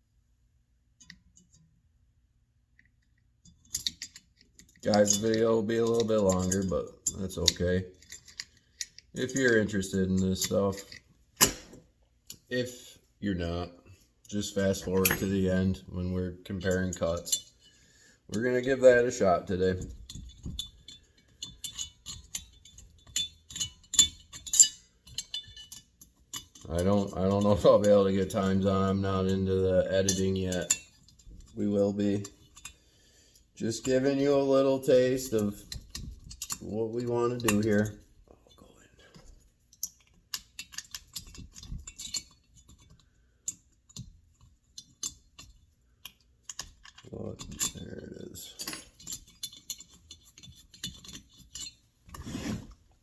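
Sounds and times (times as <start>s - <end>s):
metal tools clinking on workbench: 14.8s - 15.7s, 18.3s - 32.8s, 33.7s - 38.0s, 46.5s - 51.8s.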